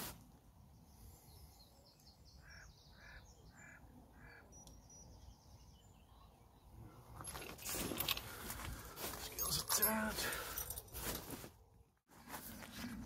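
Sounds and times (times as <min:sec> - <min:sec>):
faint high bird chirping: 0:00.7 - 0:07.0
short bird calls: 0:02.3 - 0:04.9.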